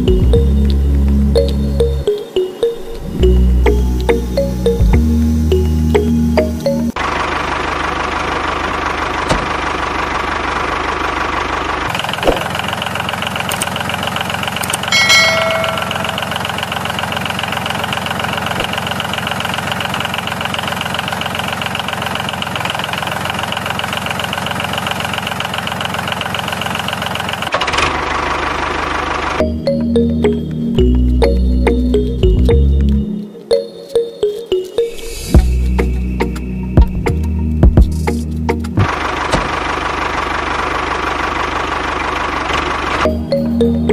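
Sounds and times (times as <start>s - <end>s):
tractor engine knocking: 7.0s - 29.6s, 37.6s - 43.2s.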